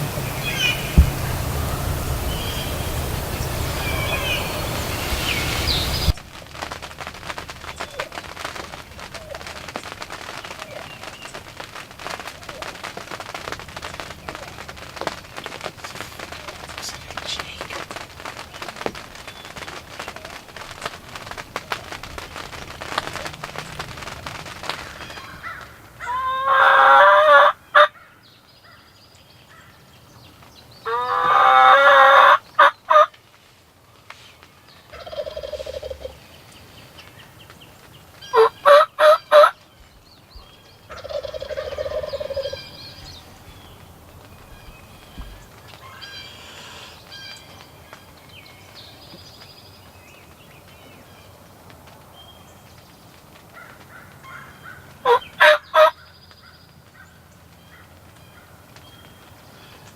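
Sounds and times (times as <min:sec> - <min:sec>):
steady background hiss: 0:00.0 - 0:26.3, 0:32.1 - 0:59.9
turkey gobbling: 0:24.9 - 0:28.0, 0:30.9 - 0:33.1, 0:35.0 - 0:36.2, 0:38.3 - 0:39.6, 0:40.9 - 0:42.8, 0:53.9 - 0:56.0.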